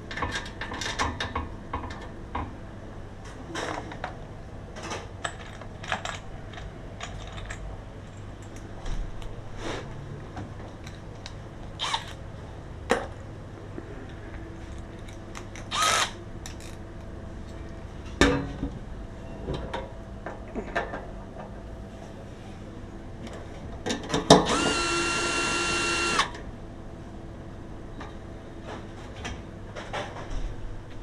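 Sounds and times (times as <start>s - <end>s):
handling knocks and clicks: 4.8s - 9.4s
electric power tool whirring: 15.7s - 16.2s, 24.4s - 26.4s.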